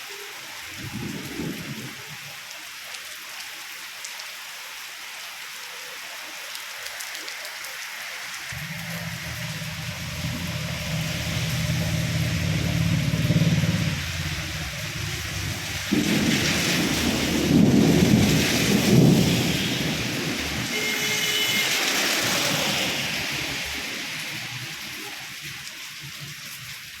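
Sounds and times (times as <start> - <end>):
heavy rain: 0.0 - 27.0
thunder rolling: 8.5 - 24.8.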